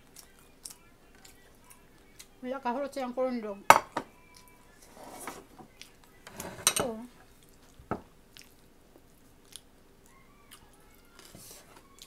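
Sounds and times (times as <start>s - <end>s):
person chewing and smacking: 0.0s - 2.4s, 4.2s - 4.6s, 5.7s - 6.2s, 7.3s - 11.3s.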